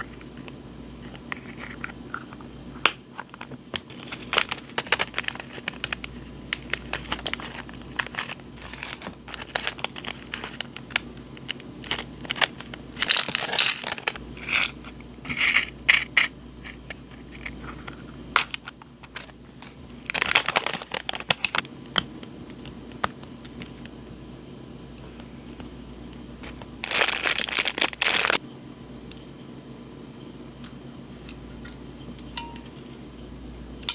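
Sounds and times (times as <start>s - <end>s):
paper crinkling and rustling: 3.2s - 14.8s, 17.1s - 21.7s, 26.4s - 28.4s.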